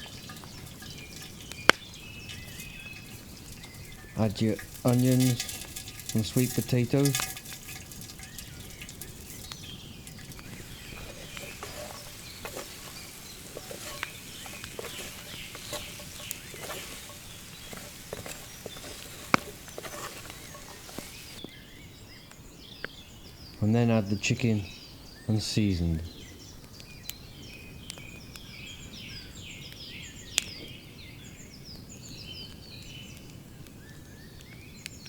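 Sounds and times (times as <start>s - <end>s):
faint birds calling: 0.0s - 21.4s
vegetables sizzling and crackling: 0.0s - 21.4s.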